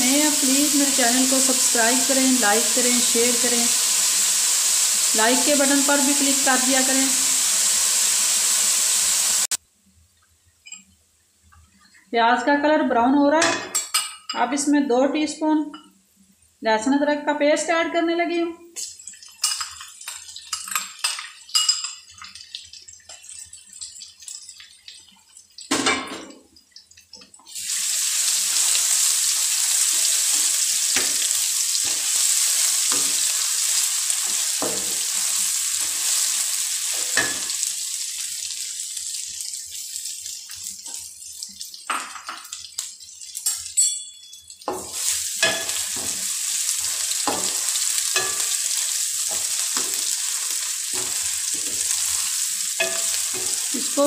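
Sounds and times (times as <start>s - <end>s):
paste sizzling in hot oil: 0.0s - 9.6s, 18.8s - 25.8s, 27.4s - 43.8s, 44.4s - 54.0s
spatula stirring: 44.4s - 53.8s.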